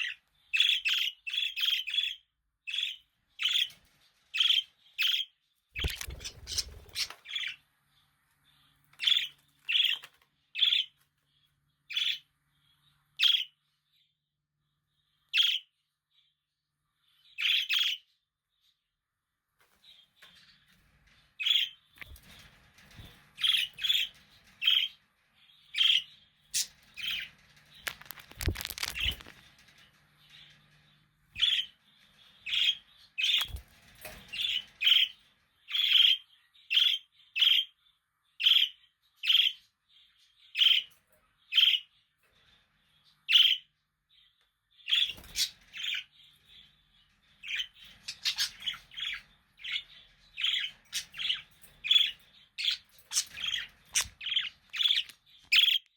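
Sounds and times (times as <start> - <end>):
budgerigars chirping: 4.4 - 7.6, 47.4 - 55.8
rustling: 26.5 - 32.6.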